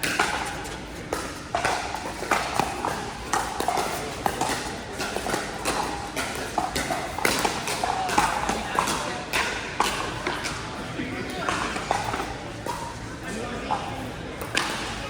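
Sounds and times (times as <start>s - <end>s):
background hubbub: 0.0s - 15.0s.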